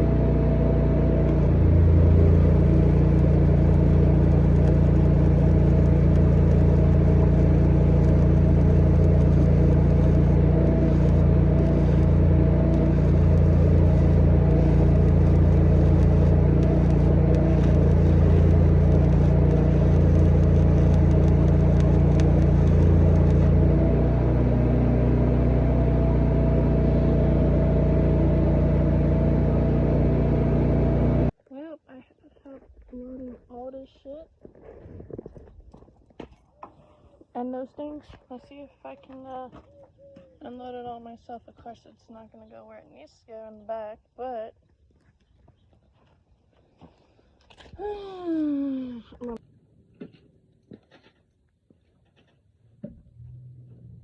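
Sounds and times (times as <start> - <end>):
engine running steadily: 0.0 - 31.4.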